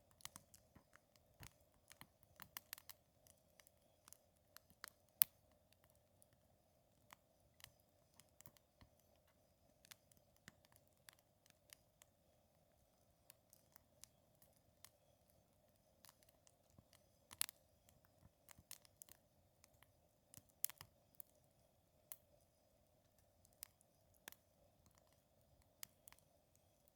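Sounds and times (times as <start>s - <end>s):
wood fire crackling: 0.0s - 21.3s, 23.0s - 26.9s.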